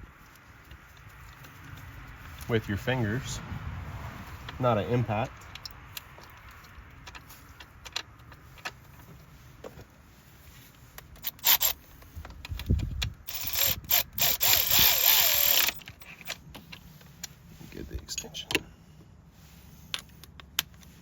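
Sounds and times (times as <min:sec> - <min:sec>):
cordless ratchet running: 0:11.2 - 0:11.8, 0:12.5 - 0:16.2
metal tools clicking: 0:11.2 - 0:16.9.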